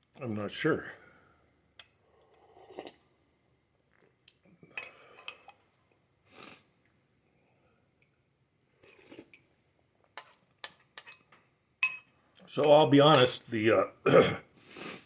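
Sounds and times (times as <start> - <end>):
spoon clinking on bowl: 10.2 - 13.4.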